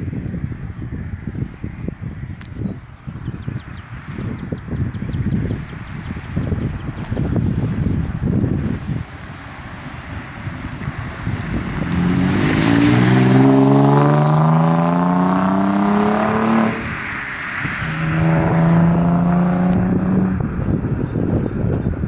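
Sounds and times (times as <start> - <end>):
wind on microphone: 0.0 - 22.0
car engine accelerating: 10.5 - 21.8.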